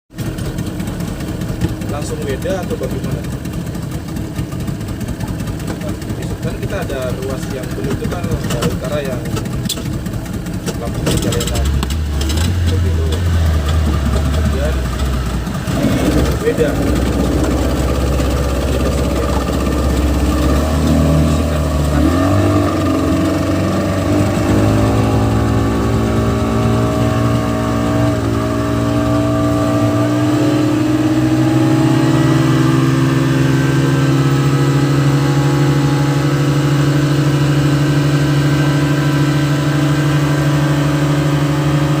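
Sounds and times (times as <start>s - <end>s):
engines revving up: 10.6s - 42.0s.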